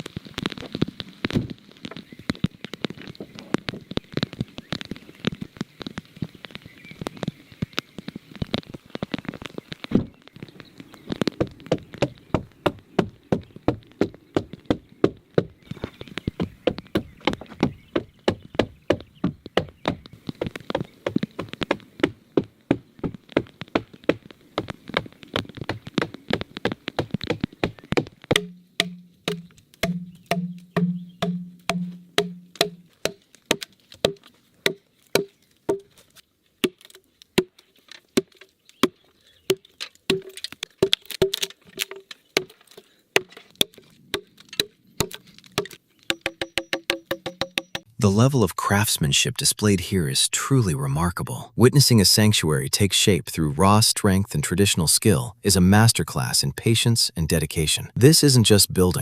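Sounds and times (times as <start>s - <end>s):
hand tool knocking on wood: 27.0s - 35.8s, 45.0s - 47.9s.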